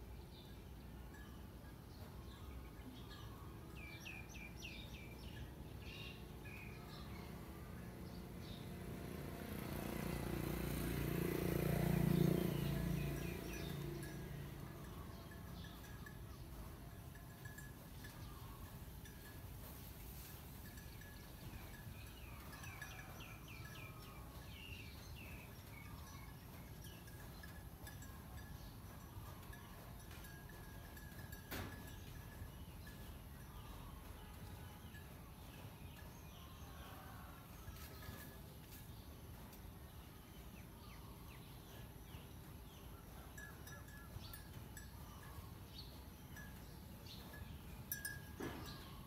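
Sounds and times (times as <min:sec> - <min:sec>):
small birds chirping: 0:11.8 - 0:49.0.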